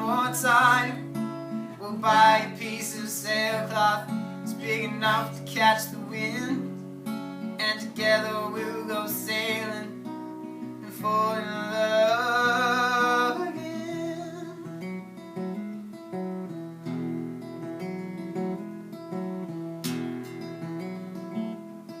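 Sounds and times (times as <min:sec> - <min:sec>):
person singing with vibrato: 0:00.0 - 0:06.7, 0:07.4 - 0:10.1, 0:10.8 - 0:15.0
strummed acoustic guitar: 0:00.0 - 0:22.0.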